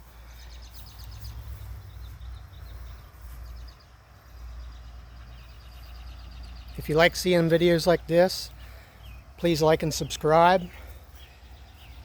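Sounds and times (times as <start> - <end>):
low steady rumble: 0.0 - 6.8
birds chirping in trills: 0.0 - 12.0.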